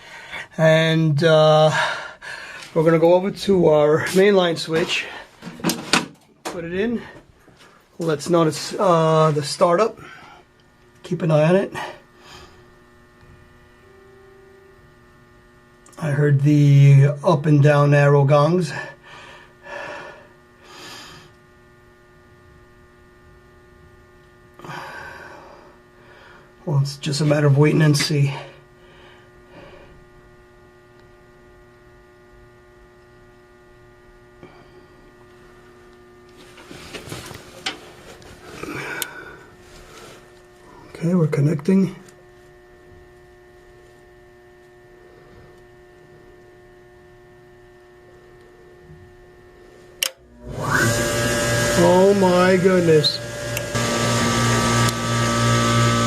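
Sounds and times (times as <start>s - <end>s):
electrical hum of machinery: 0.0s - 56.0s.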